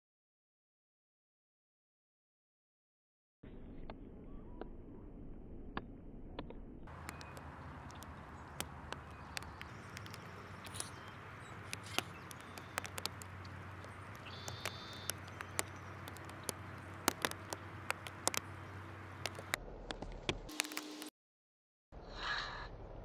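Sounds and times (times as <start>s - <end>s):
sharp ticks and clicks: 5.8s - 21.1s
high-pitched bird call: 7.0s - 19.5s.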